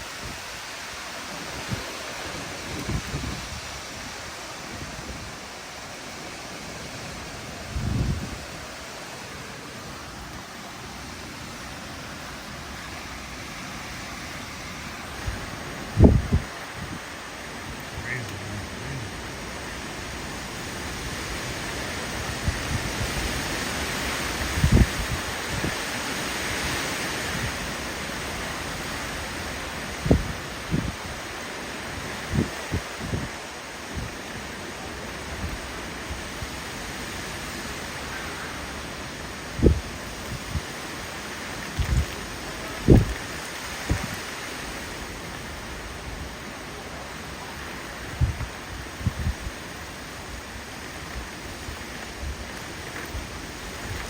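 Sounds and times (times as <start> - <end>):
wind buffeting microphone: 1.4 - 5.5, 7.1 - 8.8, 14.4 - 23.5, 24.2 - 25.9, 30.0 - 31.2, 31.9 - 34.4, 39.5 - 40.8, 41.7 - 44.3, 47.8 - 54.0
windstorm rushing: 1.4 - 5.6, 7.1 - 8.8, 14.1 - 25.9, 41.8 - 44.3, 48.0 - 54.0
strong wind rushing: 15.1 - 19.7.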